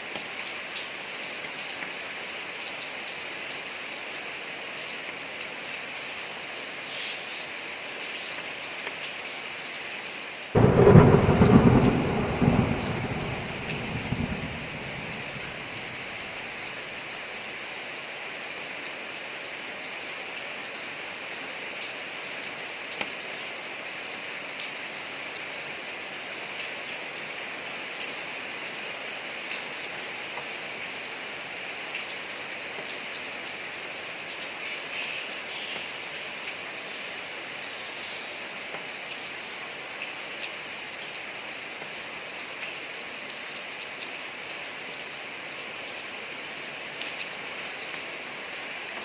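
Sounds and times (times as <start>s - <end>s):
rain falling on street: 0.0s - 49.0s
raindrop ticks: 10.6s - 16.7s.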